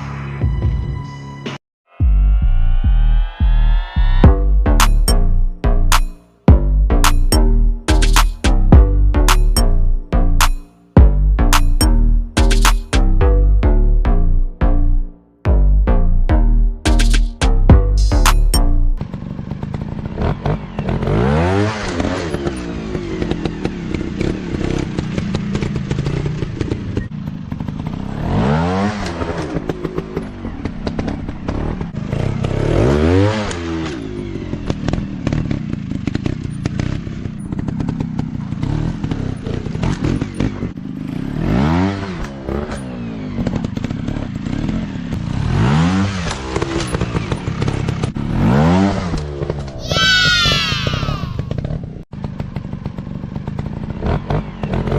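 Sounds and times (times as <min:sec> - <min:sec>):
dirt bike engines revving: 0:19.2 - 0:51.8.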